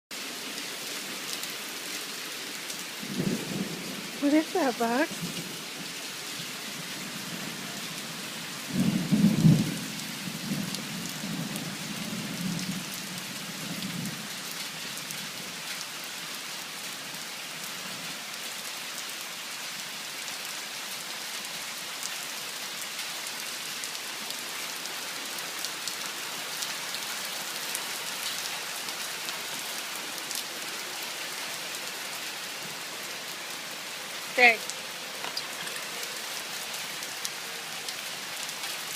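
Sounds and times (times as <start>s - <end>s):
heavy rain hissing: 0.2s - 38.9s
thunderclap rumbling: 8.7s - 12.8s.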